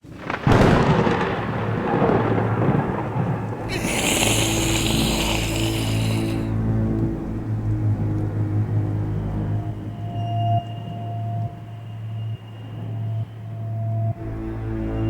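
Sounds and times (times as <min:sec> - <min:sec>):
thunderclap rumbling: 0:00.0 - 0:06.5
high hiss: 0:03.7 - 0:06.5.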